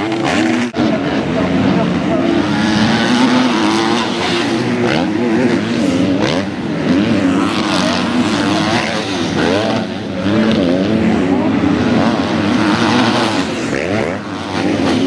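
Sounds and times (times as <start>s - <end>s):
motocross bike engines racing: 0.0s - 15.0s.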